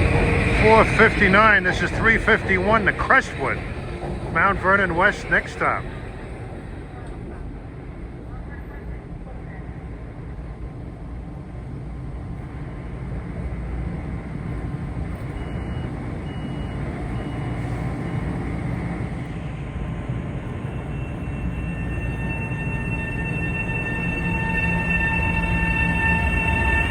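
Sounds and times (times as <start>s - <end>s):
steady high-pitched tones: 0.0s - 7.2s, 15.2s - 26.9s
train approaching rumble: 0.0s - 26.9s.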